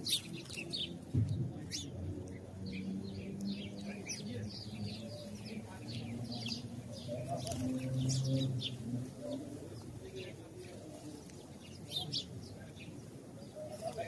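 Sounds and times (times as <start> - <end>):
sparrows chirping: 0.0 - 14.0
dove cooing: 6.7 - 9.8.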